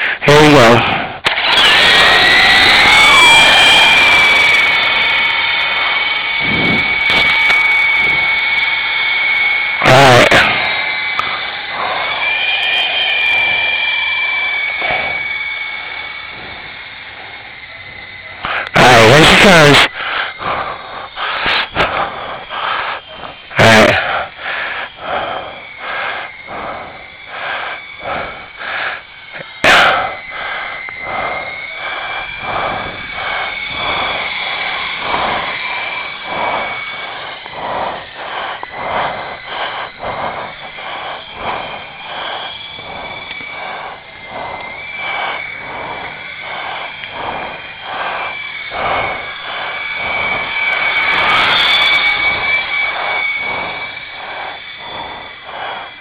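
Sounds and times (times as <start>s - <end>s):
small electric motors whining: 0.0s - 56.0s
wind buffeting microphone: 1.8s - 9.4s, 26.4s - 56.0s.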